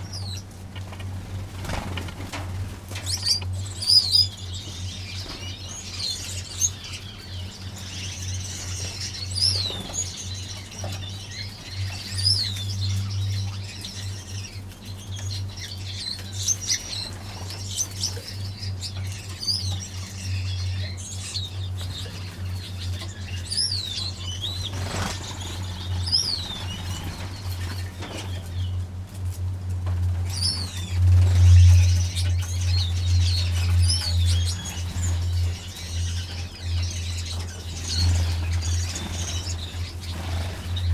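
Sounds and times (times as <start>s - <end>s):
wings fluttering: 0.0s - 4.3s, 21.8s - 40.9s
finches chirping: 3.0s - 28.7s, 30.3s - 40.9s.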